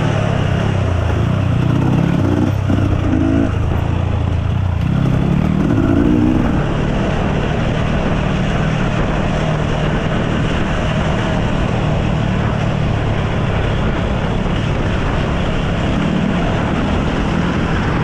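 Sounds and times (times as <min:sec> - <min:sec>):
dirt bike engine revving: 0:00.0 - 0:12.2.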